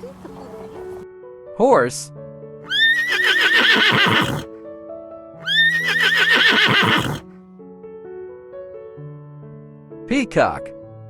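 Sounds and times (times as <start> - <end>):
soft background music: 0.0 - 11.0
horse whinnying: 2.7 - 4.5, 5.4 - 7.3.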